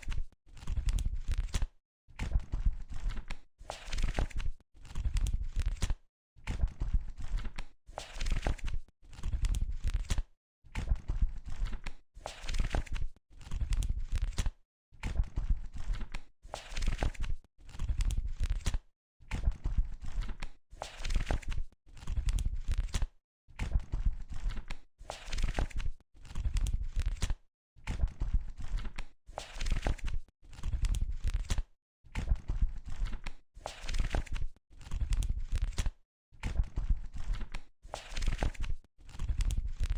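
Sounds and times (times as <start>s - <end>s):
book pages turning: 33.7s - 35.9s, 37.2s - 39.9s.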